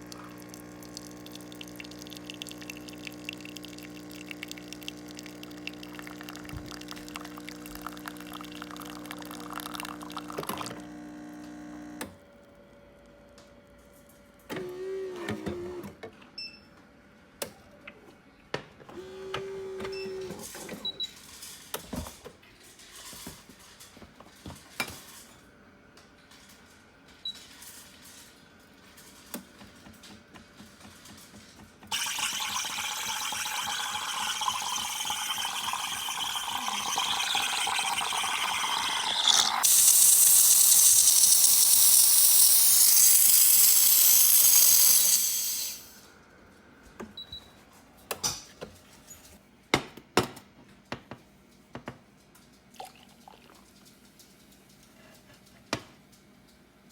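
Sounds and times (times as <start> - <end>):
motor hum: 0.0 - 12.2
steam hissing: 31.9 - 46.0.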